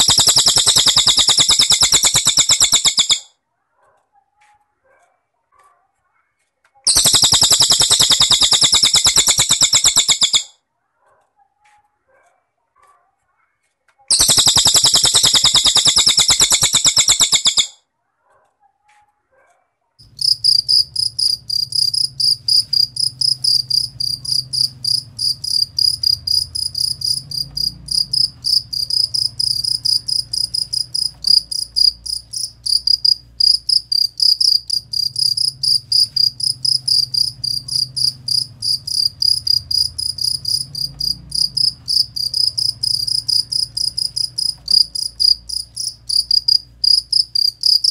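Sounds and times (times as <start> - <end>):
cricket chirping: 0.0 - 3.2, 6.9 - 10.5, 14.1 - 17.7, 20.0 - 47.9
bird rattling trill: 0.0 - 3.3, 6.9 - 10.5, 14.1 - 17.8, 20.0 - 47.9
low hum: 20.0 - 47.6.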